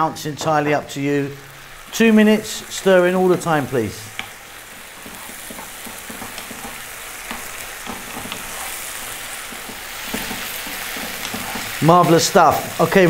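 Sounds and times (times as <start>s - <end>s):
meat sizzling in hot oil: 0.5s - 13.0s
wooden spatula knocking on pan: 5.0s - 8.4s, 9.5s - 11.7s.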